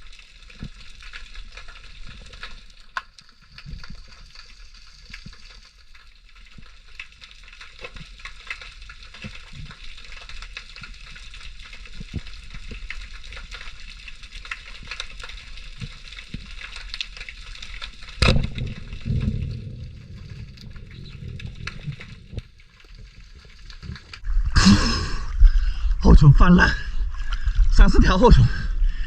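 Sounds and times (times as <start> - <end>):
underwater crackling clicks: 0.0 - 24.3
low rumble: 18.2 - 22.9, 23.9 - 29.0.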